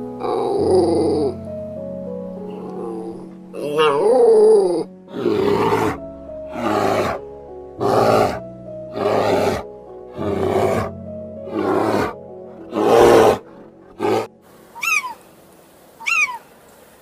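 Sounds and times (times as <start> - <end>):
background music: 0.0 - 15.5
bear roaring: 0.2 - 1.4, 3.9 - 7.2, 7.8 - 14.3.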